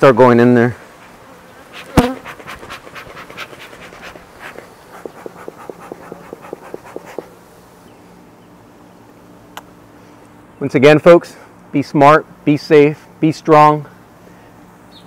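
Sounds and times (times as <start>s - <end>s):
honey bees humming: 0.3s - 10.6s
rapid rhythmic panting: 1.7s - 7.3s.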